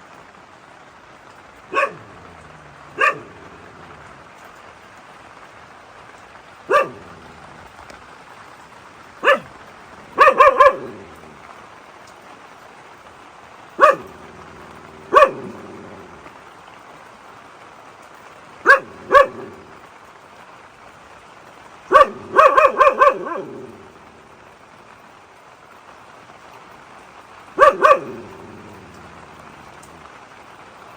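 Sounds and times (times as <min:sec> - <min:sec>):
rain hissing: 0:00.0 - 0:30.9
dog barking: 0:01.6 - 0:04.5, 0:06.7 - 0:07.8, 0:09.1 - 0:11.6, 0:13.8 - 0:16.4, 0:18.6 - 0:19.9, 0:21.9 - 0:24.5, 0:27.5 - 0:30.2.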